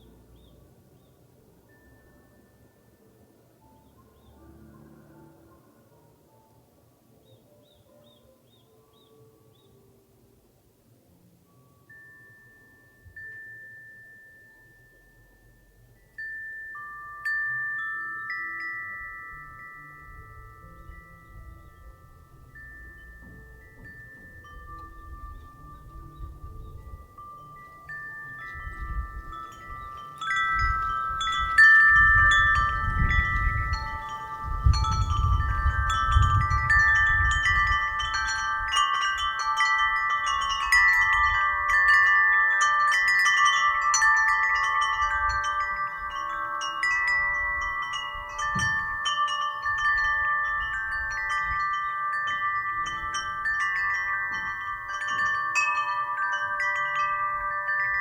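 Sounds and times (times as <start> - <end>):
wind chimes ringing: 1.6 - 5.6, 11.4 - 58.0
wind rumbling on microphone: 19.3 - 58.0.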